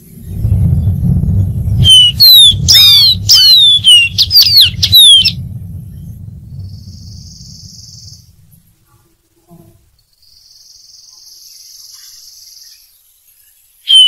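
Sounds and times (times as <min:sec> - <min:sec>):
bird whistling descending notes: 0:00.0 - 0:08.4
low steady rumble: 0:00.0 - 0:10.0.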